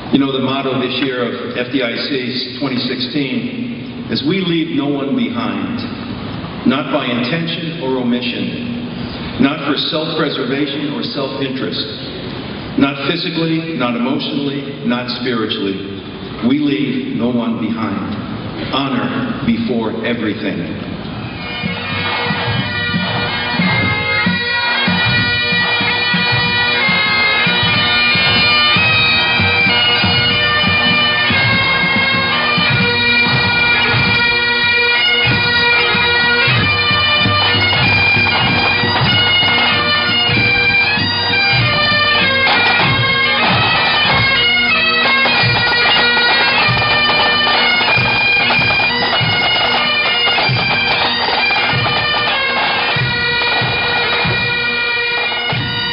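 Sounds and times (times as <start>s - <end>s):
drums beating: 20.8s - 55.9s
bagpipes playing a tune: 20.9s - 55.9s.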